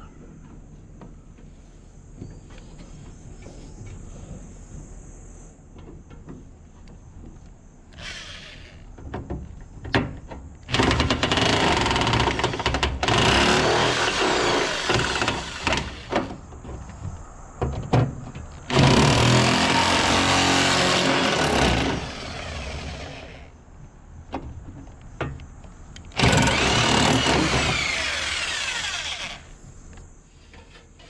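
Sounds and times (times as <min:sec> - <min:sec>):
power nibbler motor cutting: 0:08.0 - 0:08.8, 0:26.2 - 0:29.6.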